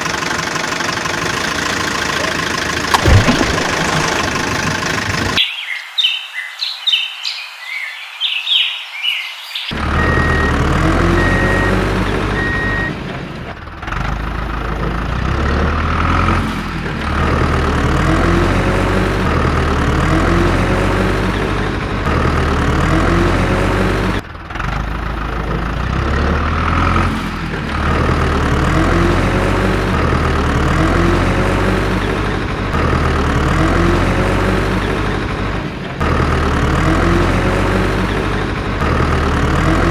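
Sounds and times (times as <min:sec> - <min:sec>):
heavy truck engine running: 0:00.0 - 0:05.4, 0:09.7 - 0:39.9
reversing beeps: 0:09.8 - 0:13.0.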